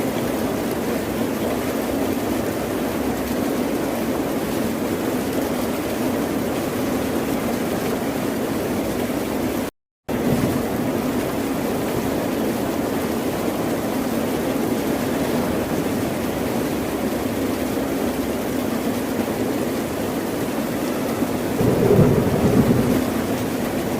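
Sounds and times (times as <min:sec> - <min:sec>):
ocean waves washing: 0:10.1 - 0:23.9.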